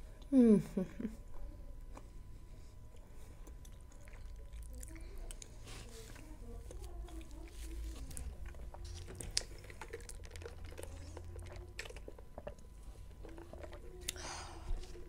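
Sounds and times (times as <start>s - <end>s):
chewing with wet mouth clicks: 2.9s - 14.2s.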